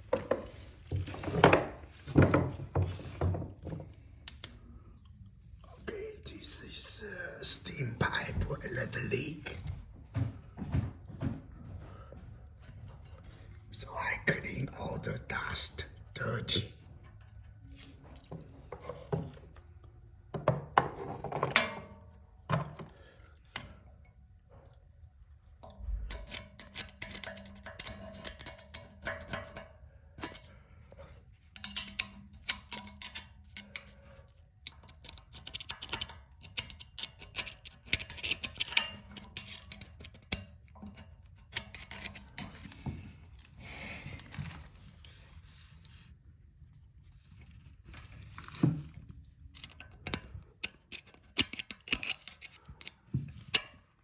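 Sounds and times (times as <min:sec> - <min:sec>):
hands scraping and clicking on pipe: 0:25.6 - 0:54.0.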